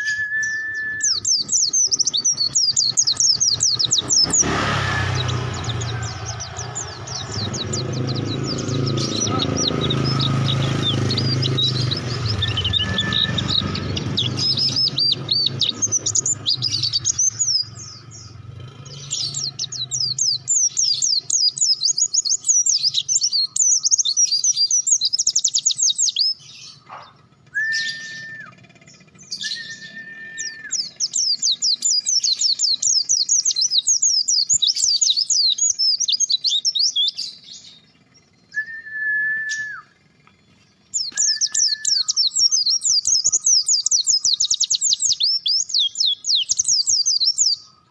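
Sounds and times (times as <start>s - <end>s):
bird chattering song: 0.0s - 47.9s
low engine hum: 0.7s - 34.6s, 35.2s - 47.5s
short whistled notes: 27.5s - 28.6s.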